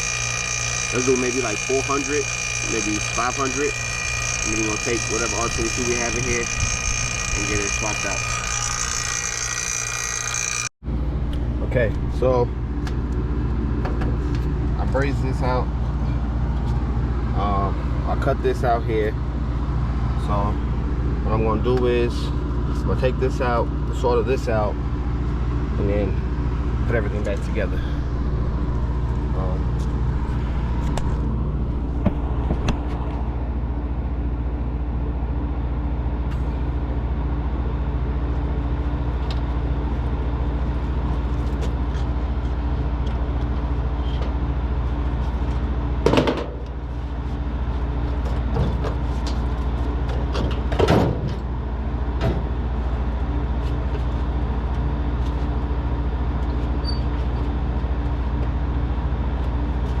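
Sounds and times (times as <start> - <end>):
vacuum pump humming: 0.0 - 12.0.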